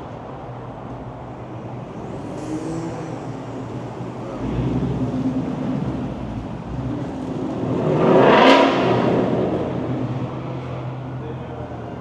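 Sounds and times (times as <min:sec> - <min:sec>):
car engine accelerating hard: 0:01.9 - 0:10.9.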